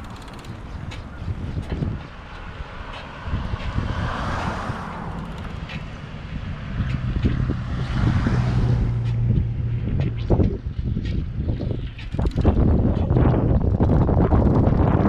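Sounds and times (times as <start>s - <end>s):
wind buffeting microphone: 0.0s - 15.0s
steady low hum: 5.0s - 14.7s.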